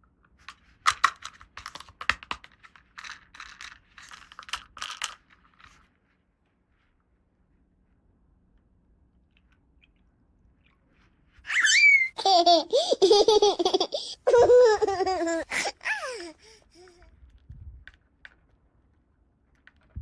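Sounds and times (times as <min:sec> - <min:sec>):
high-pitched childlike laughter: 0:11.5 - 0:17.0.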